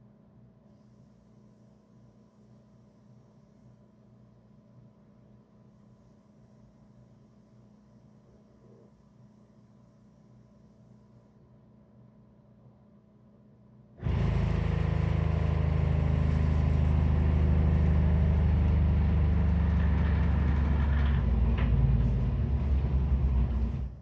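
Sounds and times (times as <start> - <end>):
household machine rumbling and humming: 14.0 - 24.0.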